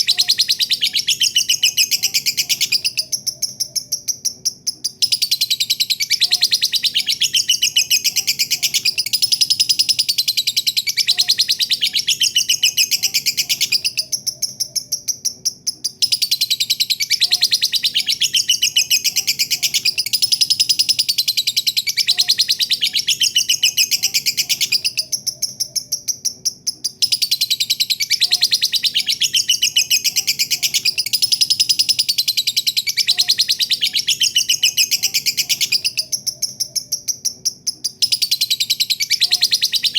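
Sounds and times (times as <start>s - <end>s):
bird chattering trill: 0.0s - 39.9s.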